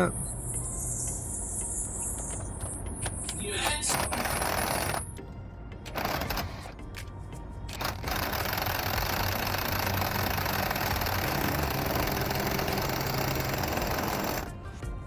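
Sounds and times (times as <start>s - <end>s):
impact wrench tightening nut: 7.7s - 14.5s.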